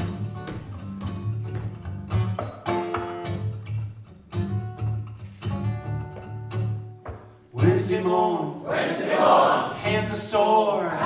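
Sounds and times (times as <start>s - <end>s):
acoustic guitar strumming: 0.0s - 8.3s.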